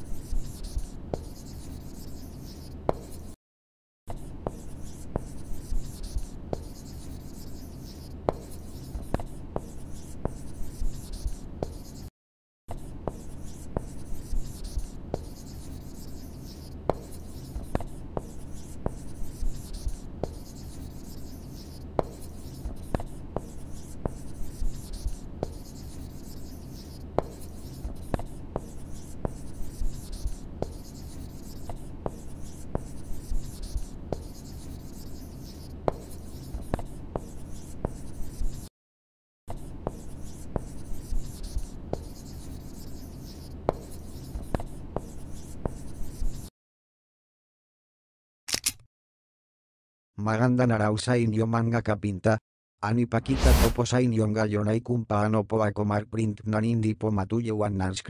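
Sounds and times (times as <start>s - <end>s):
marker scratching on surface: 0.0s - 3.4s, 4.1s - 12.1s, 12.7s - 38.7s, 39.5s - 46.5s, 53.2s - 53.8s.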